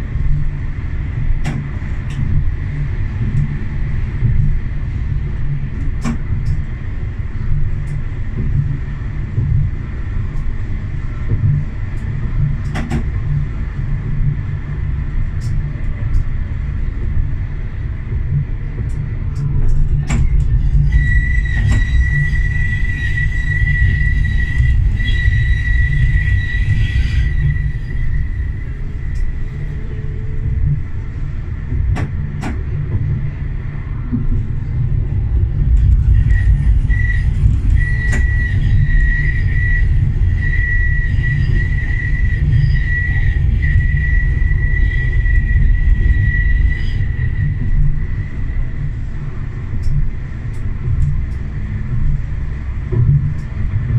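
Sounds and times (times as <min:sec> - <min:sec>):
tram rumbling on rails: 0:00.0 - 0:53.9
high-pitched squeal: 0:20.5 - 0:30.4, 0:35.7 - 0:48.9.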